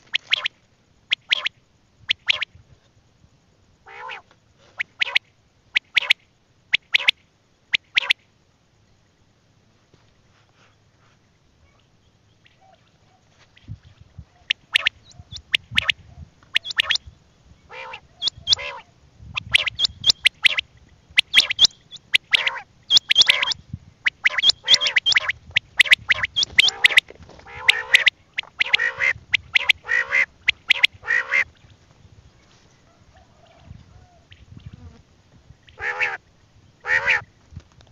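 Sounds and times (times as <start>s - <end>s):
quail calling: 0.0s - 2.5s, 3.8s - 6.2s, 6.8s - 7.2s, 12.4s - 17.1s, 17.7s - 31.6s, 32.8s - 34.6s, 35.7s - 36.2s, 36.8s - 37.3s
sharp high clicks: 0.0s - 2.6s, 6.8s - 7.2s, 14.5s - 17.0s, 19.4s - 27.1s, 27.7s - 28.8s.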